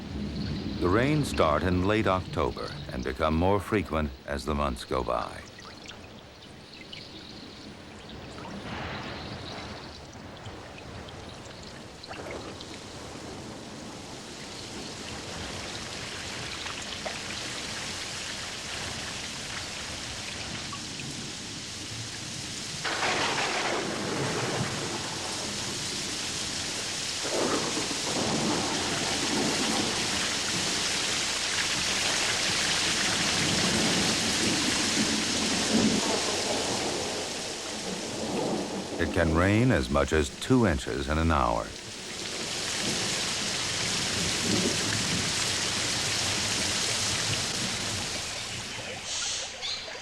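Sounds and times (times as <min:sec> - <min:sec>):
heavy rain hissing: 0:00.0 - 0:05.4, 0:22.3 - 0:49.5
thunder cracking and rumbling: 0:22.8 - 0:25.7, 0:27.2 - 0:30.7.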